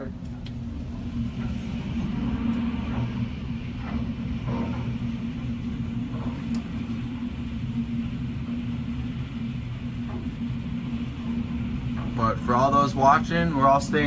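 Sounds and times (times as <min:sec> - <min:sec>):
low hum: 0:00.0 - 0:14.0
low rumble: 0:00.0 - 0:14.0.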